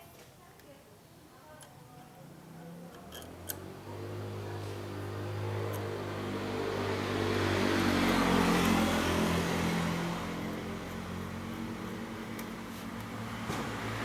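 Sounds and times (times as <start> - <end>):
vehicle engine passing by: 2.5 - 14.0.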